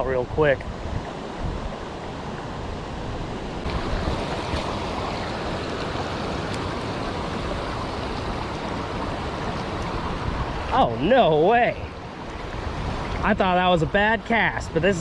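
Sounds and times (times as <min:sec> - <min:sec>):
water rushing through dam spillway: 0:03.6 - 0:15.0.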